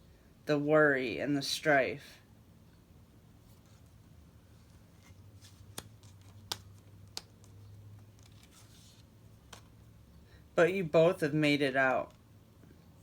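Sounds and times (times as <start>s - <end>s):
low room hum: 0.0s - 13.0s
cards clicking on a table: 5.7s - 7.6s.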